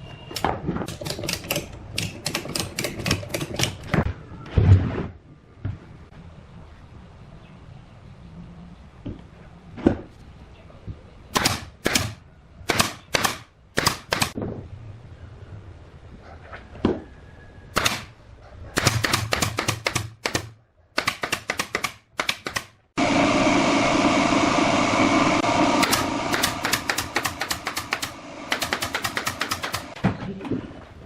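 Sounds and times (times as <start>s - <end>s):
power tool running: 23.0s - 30.0s
rapid sharp clicks: 25.8s - 30.0s.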